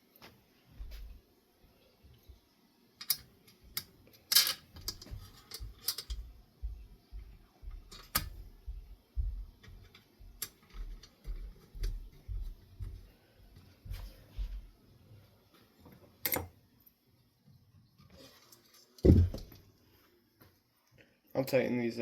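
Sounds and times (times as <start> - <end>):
ceiling fan parts clicking: 3.0 - 14.6
soft handling bumps: 19.0 - 19.7.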